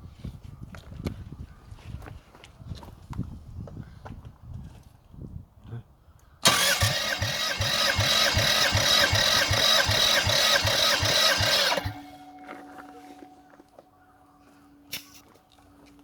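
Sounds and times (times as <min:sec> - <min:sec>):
car engine cranking on starter: 0:06.4 - 0:12.4.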